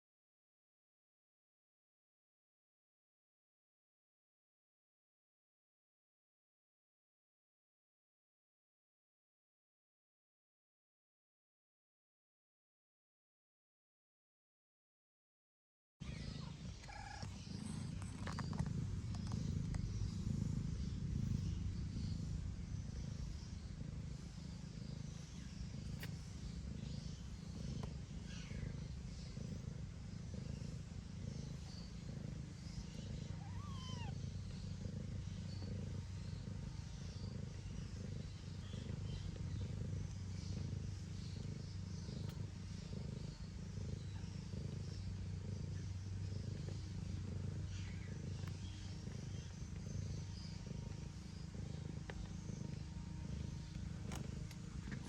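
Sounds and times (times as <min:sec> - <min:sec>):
kittens squeaking: 0:16.0 - 0:19.7, 0:33.3 - 0:34.2
cat purring: 0:16.0 - 0:55.0.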